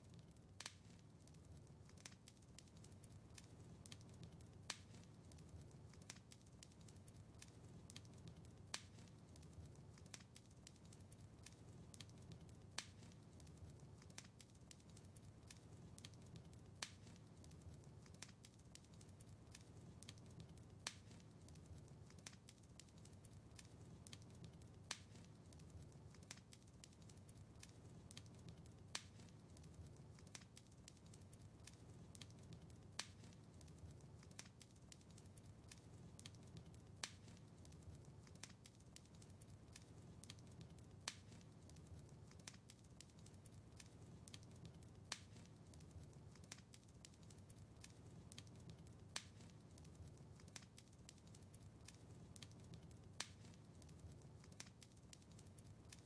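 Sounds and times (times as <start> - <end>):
low fire rumble: 0.0 - 56.0
wood fire crackling: 0.0 - 56.0.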